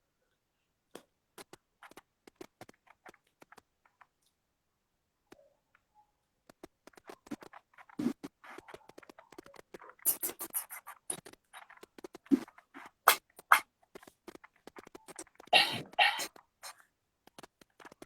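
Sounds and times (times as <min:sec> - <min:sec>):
soft taps and rustles: 0:00.9 - 0:04.4, 0:06.4 - 0:10.0, 0:17.2 - 0:18.0.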